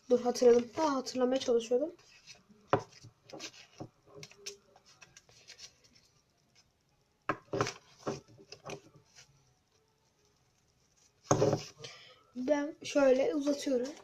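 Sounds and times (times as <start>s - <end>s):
paper handling: 2.0s - 6.6s.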